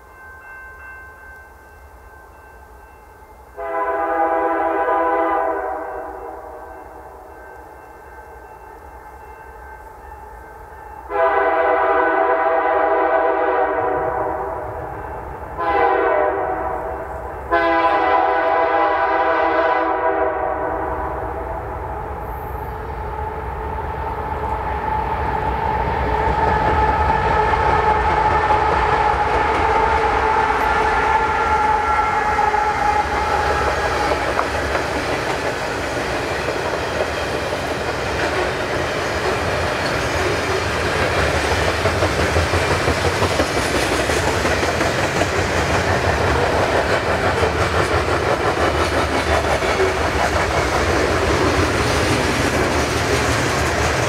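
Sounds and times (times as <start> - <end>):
locomotive air horn: 3.6 - 6.6, 11.1 - 14.6, 15.6 - 21.5, 26.8 - 34.0
train wheels rumbling on rails: 3.6 - 54.0
train cars clickety-clack: 11.1 - 20.3, 24.4 - 54.0.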